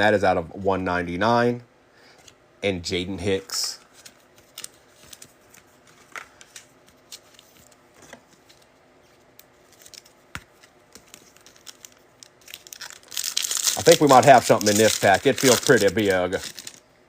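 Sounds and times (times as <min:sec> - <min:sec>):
cards and foil wrapper rustling: 0:03.9 - 0:08.7, 0:09.5 - 0:16.8.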